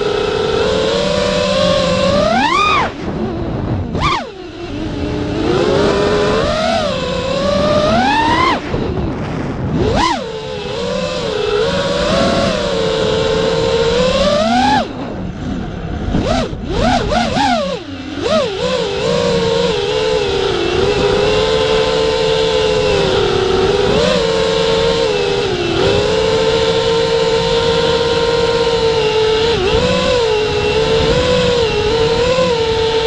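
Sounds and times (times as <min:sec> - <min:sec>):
electric motor whining: 0:00.0 - 0:33.0.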